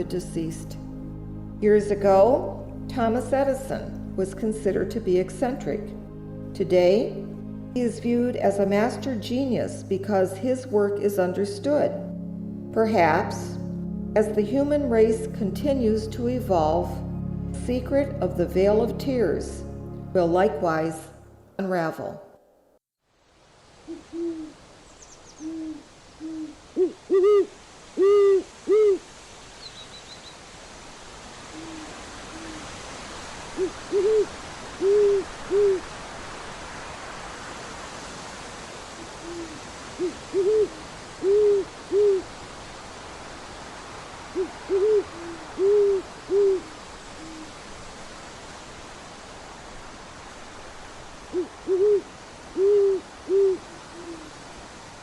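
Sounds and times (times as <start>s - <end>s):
steady hiss: 23.1s - 55.0s
owl hooting: 23.8s - 30.3s, 31.5s - 32.7s, 33.5s - 35.9s, 39.0s - 42.3s, 44.3s - 47.6s, 51.3s - 54.4s.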